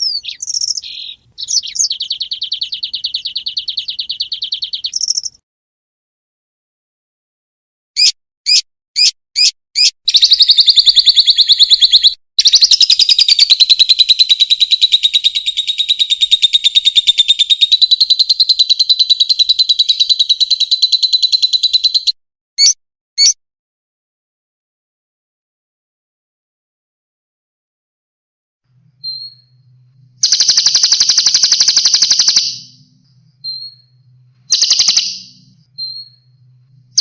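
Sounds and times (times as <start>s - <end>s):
songbird singing: 0.0s - 5.4s, 8.0s - 23.4s, 28.7s - 37.0s.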